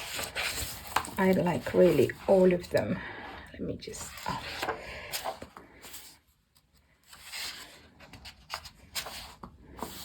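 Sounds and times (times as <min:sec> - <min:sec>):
paper pages turning and rubbing: 0:00.0 - 0:02.6, 0:04.0 - 0:10.0.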